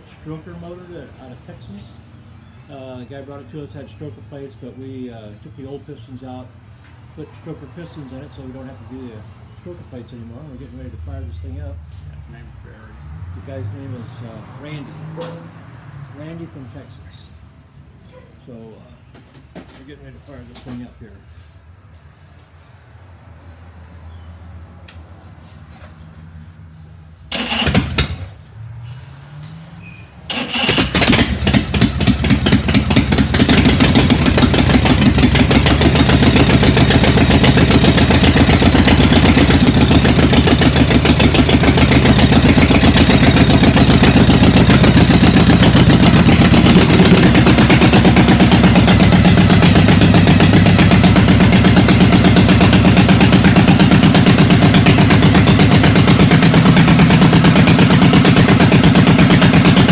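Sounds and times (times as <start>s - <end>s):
motorcycle engine starting and running: 27.2s - 59.9s.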